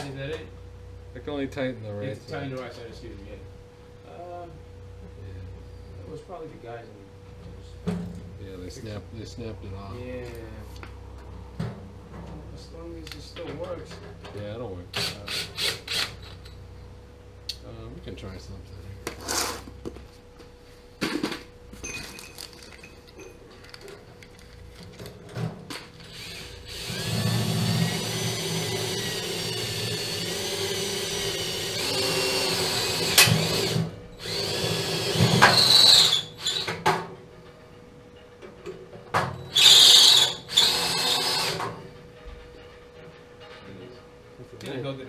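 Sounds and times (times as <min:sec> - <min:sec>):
power drill whining: 0:15.0 - 0:16.4, 0:26.0 - 0:36.8, 0:39.5 - 0:41.8.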